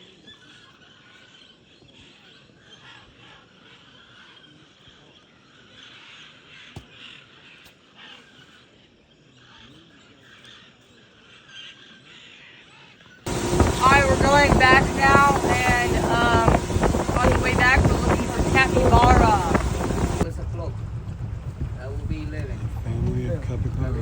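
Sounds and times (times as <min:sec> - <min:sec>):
faint birds calling: 0:13.3 - 0:20.2.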